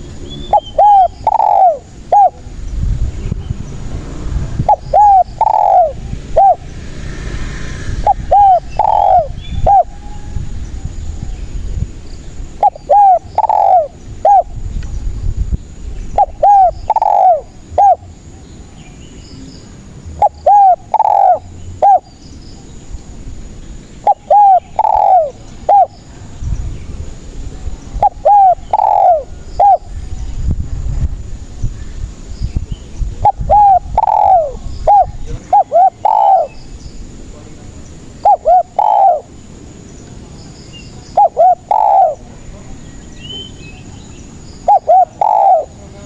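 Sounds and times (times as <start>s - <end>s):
dove cooing: 0.0s - 2.5s, 4.6s - 6.8s, 8.0s - 10.4s, 12.5s - 14.6s, 16.1s - 18.4s, 20.1s - 22.1s, 24.0s - 26.1s, 27.9s - 30.0s, 33.2s - 36.6s, 38.0s - 39.5s, 41.1s - 42.5s, 44.6s - 46.0s.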